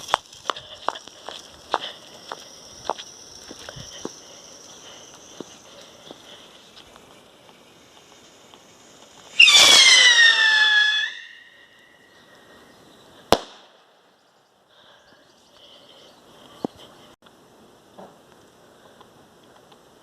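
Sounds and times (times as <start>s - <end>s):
whistling rocket launching: 9.3s - 12.0s.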